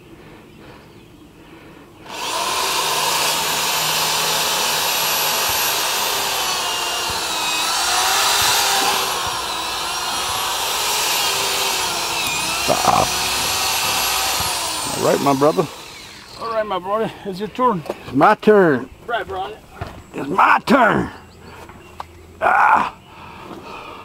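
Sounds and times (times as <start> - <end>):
electric power drill whining: 2.0 - 16.6.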